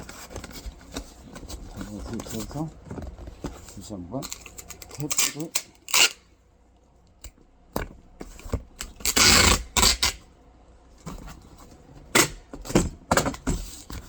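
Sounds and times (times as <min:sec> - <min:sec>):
packing tape pulled off roll: 0:04.3 - 0:06.2, 0:08.8 - 0:10.2.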